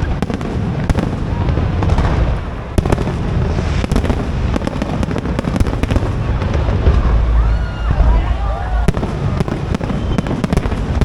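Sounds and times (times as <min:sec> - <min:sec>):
fireworks bangs and crackles: 0:00.0 - 0:11.0
low rumble: 0:06.1 - 0:10.1.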